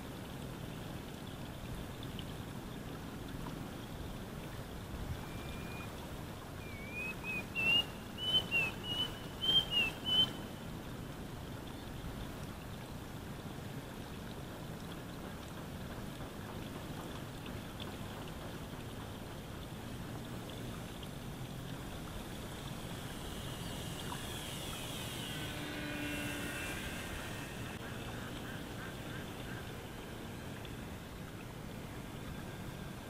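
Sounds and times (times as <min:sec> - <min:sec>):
low background noise: 0:00.0 - 0:33.0
bird whistling notes: 0:05.2 - 0:05.9, 0:06.6 - 0:10.4.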